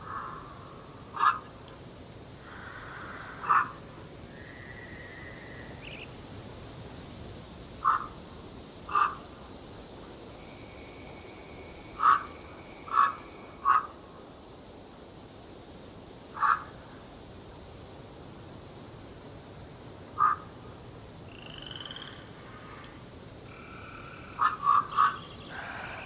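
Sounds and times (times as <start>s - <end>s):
loud bird calls: 0.0s - 1.5s, 2.4s - 6.1s, 7.8s - 8.2s, 8.9s - 9.2s, 11.1s - 14.0s, 20.2s - 20.5s, 23.5s - 26.0s
steady hiss: 0.0s - 26.0s
long whistled bird notes: 4.3s - 6.1s, 10.4s - 13.6s.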